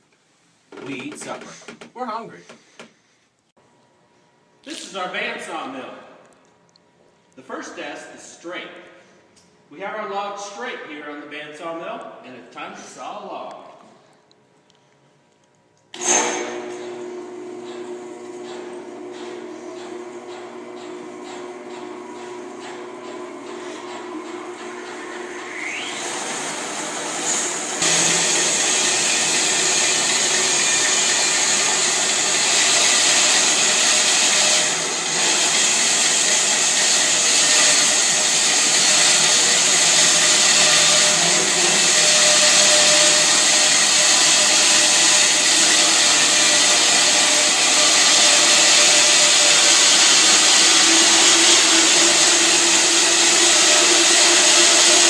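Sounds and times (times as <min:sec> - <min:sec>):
bandsaw mill whining through wood: 0:16.0 - 0:55.0.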